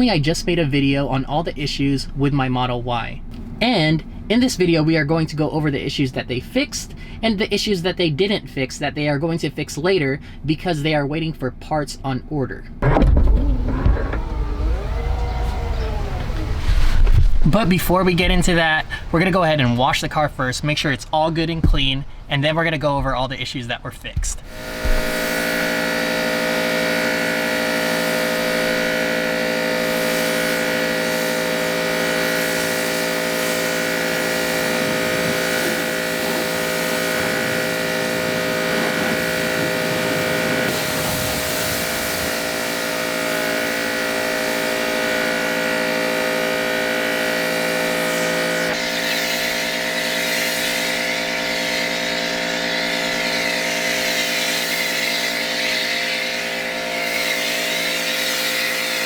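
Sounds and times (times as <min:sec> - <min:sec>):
car wash machinery motor whine: 0:12.8 - 0:20.1, 0:24.4 - 0:59.0.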